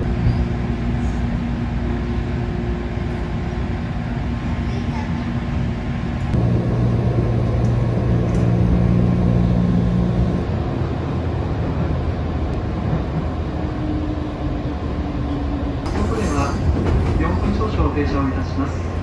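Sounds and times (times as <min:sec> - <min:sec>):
train running rumble: 0:00.0 - 0:19.0
low motor hum: 0:06.4 - 0:10.5.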